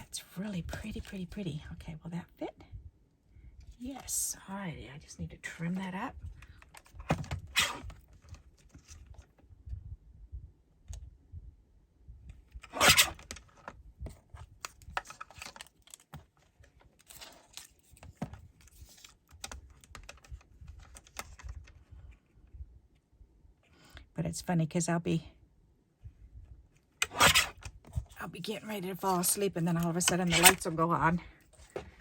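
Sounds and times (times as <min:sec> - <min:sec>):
paper rustling: 0:14.6 - 0:21.8.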